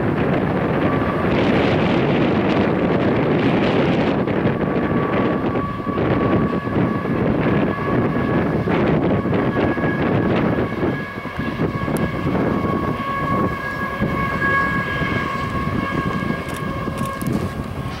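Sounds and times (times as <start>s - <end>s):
diesel locomotive engine running: 0.0s - 18.0s
wind buffeting microphone: 0.0s - 18.0s
train wheels rolling on rails: 15.4s - 18.0s.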